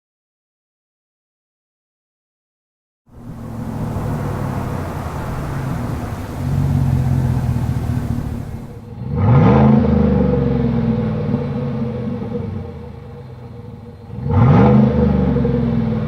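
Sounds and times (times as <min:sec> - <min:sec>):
truck exhaust engine revving: 0:03.1 - 0:08.9.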